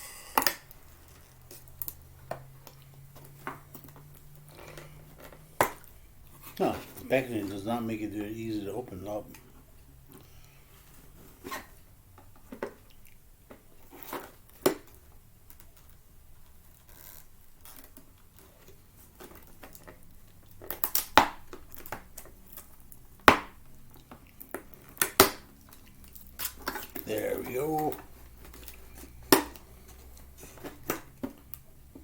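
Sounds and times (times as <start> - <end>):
packaging clicks and knocks: 0.4 - 7.6, 17.6 - 32.0.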